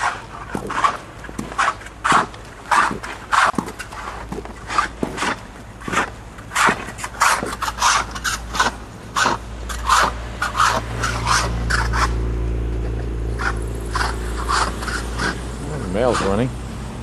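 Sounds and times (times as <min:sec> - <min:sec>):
boots crunching through snow: 0:00.0 - 0:09.4
low engine hum: 0:08.4 - 0:17.0.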